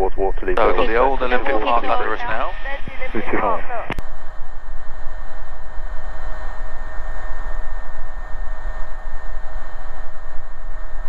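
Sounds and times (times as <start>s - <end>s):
helicopter cabin noise: 0.0s - 11.0s.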